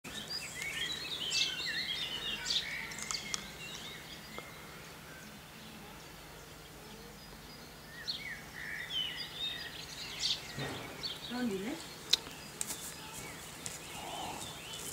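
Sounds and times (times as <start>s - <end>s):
songbirds singing: 0.0s - 14.9s.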